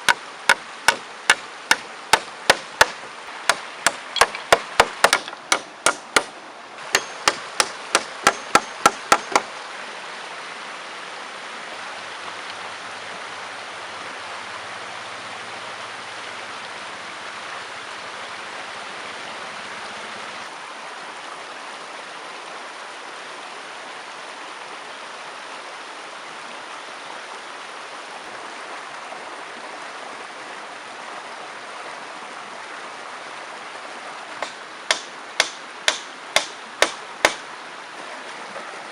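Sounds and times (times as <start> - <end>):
sharp strikes on wood: 0.0 - 9.5, 34.4 - 37.4
river water rushing: 0.0 - 38.9.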